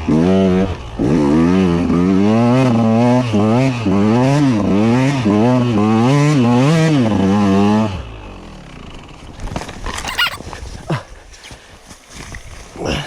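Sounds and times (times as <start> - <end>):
brief high squeaks: 9.9 - 10.4.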